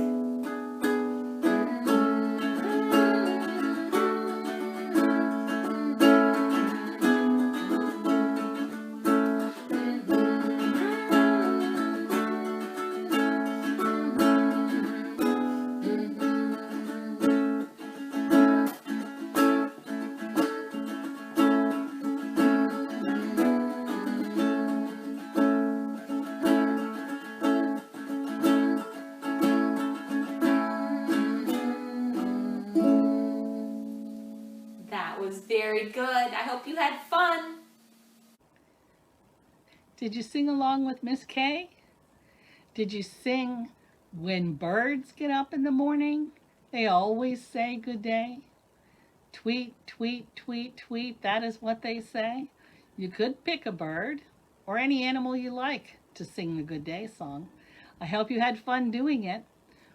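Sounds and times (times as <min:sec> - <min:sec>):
ukulele strumming: 0:00.0 - 0:36.5
person humming a tune: 0:01.2 - 0:34.9.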